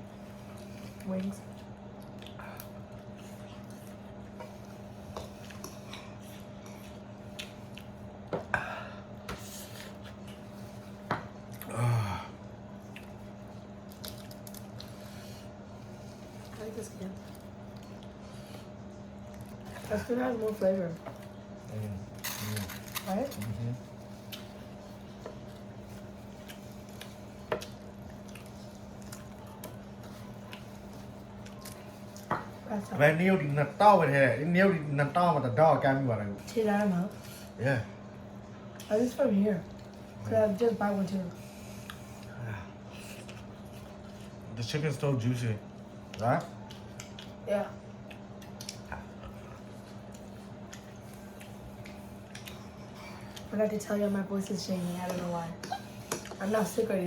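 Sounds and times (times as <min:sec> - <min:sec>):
faint steady hum: 0:00.0 - 0:57.0
wet eating squishes: 0:00.2 - 0:08.3, 0:09.1 - 0:32.6, 0:41.3 - 0:44.8, 0:45.6 - 0:53.6.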